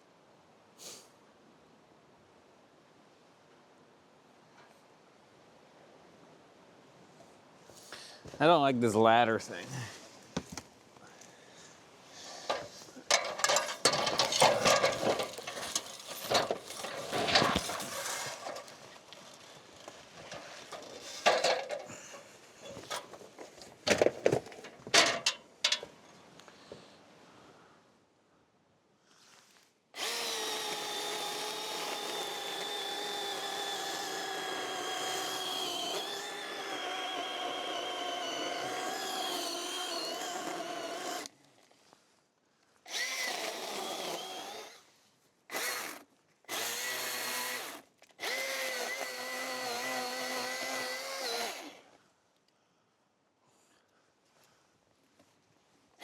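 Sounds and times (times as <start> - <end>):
cordless power tool motor whine: 13.3 - 18.7, 30.0 - 41.3, 42.9 - 44.9, 45.5 - 51.9.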